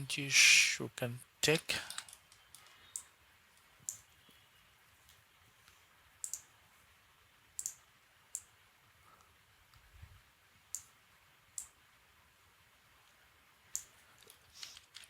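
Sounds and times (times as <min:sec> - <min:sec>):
computer mouse clicks: 0:01.9 - 0:03.1, 0:06.2 - 0:06.5, 0:07.6 - 0:07.8, 0:13.7 - 0:15.0.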